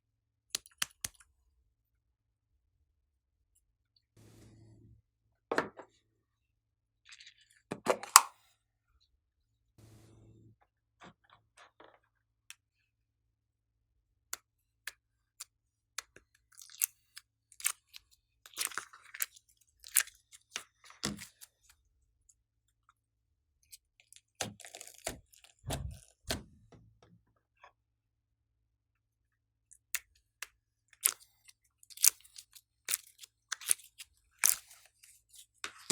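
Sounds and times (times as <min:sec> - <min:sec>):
slime sticky clicks and crackles: 0:16.0 - 0:20.2, 0:31.9 - 0:34.8.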